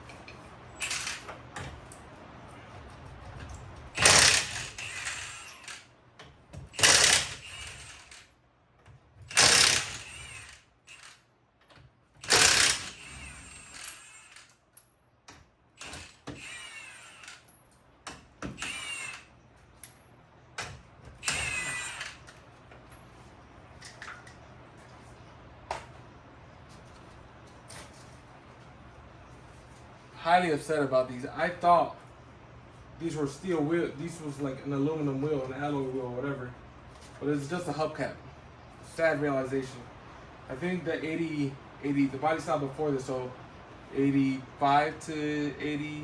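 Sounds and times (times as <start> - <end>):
impact wrench bursts: 0.8 - 1.4, 3.9 - 5.9, 6.6 - 8.3, 9.2 - 11.2, 12.2 - 14.5, 15.8 - 17.5, 18.4 - 19.4, 21.1 - 22.3
metallic clinks of loose nuts: 12.2 - 14.9.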